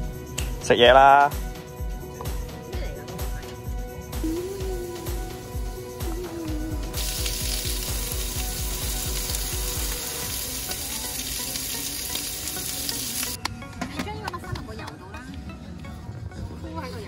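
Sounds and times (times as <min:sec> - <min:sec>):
background music with steady beat: 0:00.0 - 0:17.0
food sizzling in a frying pan: 0:07.0 - 0:13.4.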